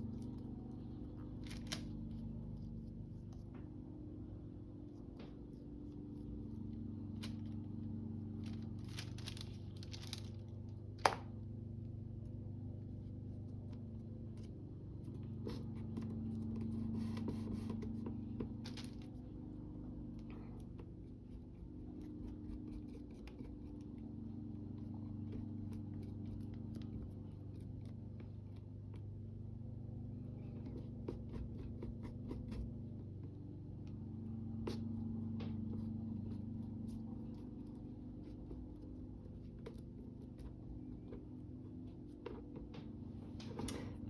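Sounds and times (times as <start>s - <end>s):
steady low hum: 0.0s - 44.0s
paper rustling and scraping: 0.1s - 3.5s, 6.1s - 11.2s, 14.4s - 19.3s.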